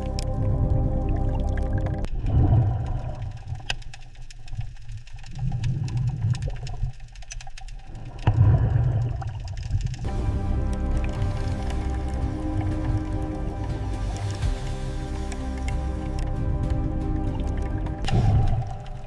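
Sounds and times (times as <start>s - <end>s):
background music: 0.0s - 2.1s, 10.0s - 19.0s
low rumble: 0.0s - 3.7s, 8.2s - 19.0s.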